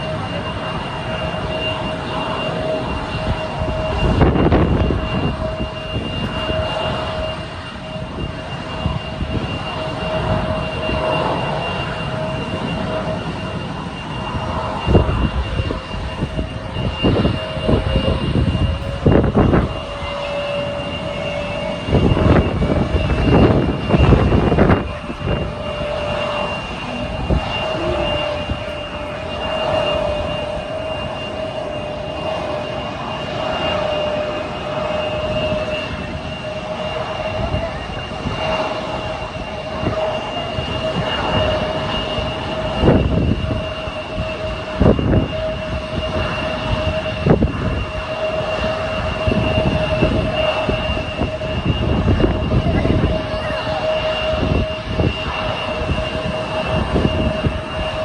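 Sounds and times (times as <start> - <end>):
jet engines whining: 0.0 - 58.0.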